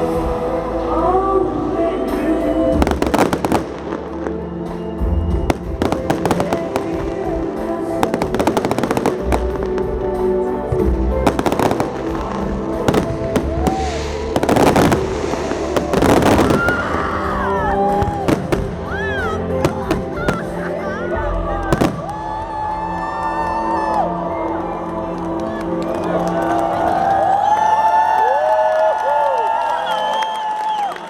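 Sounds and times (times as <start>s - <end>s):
loud festive music: 0.0s - 28.1s
fireworks bursting: 2.8s - 10.2s, 10.8s - 21.0s, 21.7s - 22.3s.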